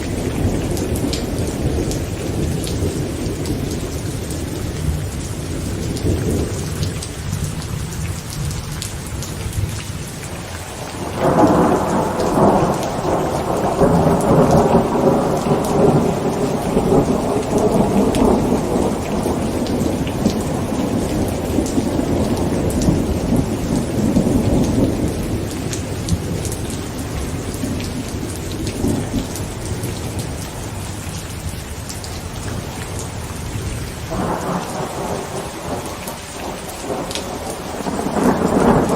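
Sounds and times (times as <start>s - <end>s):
heavy rain on a tent: 0.0s - 38.9s
thunder rumbling: 10.8s - 31.0s, 32.4s - 38.9s.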